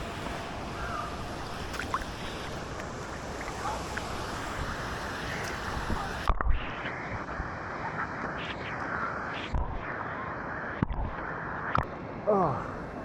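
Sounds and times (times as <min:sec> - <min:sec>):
water sloshing and splashing: 0:00.0 - 0:06.2
rush of water: 0:00.0 - 0:13.0.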